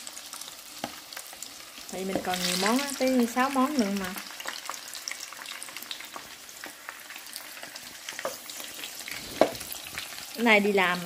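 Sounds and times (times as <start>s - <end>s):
shrimp sizzling in hot oil: 0.0s - 11.0s.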